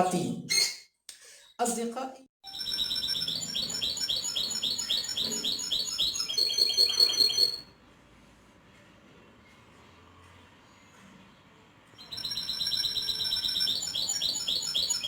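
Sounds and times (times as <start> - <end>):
canary singing: 2.5 - 7.7, 12.0 - 15.0.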